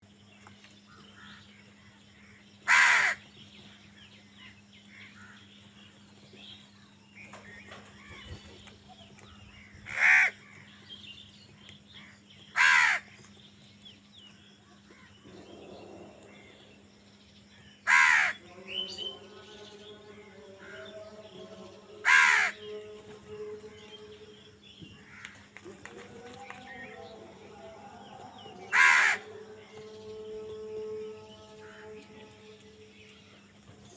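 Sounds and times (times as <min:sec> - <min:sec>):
faint bird calls: 0:00.0 - 0:33.9
crow cawing: 0:00.9 - 0:01.6, 0:02.2 - 0:03.3, 0:04.9 - 0:05.5, 0:09.6 - 0:10.8, 0:12.0 - 0:13.2, 0:17.8 - 0:18.6, 0:22.0 - 0:22.8, 0:24.9 - 0:25.8, 0:28.5 - 0:29.7.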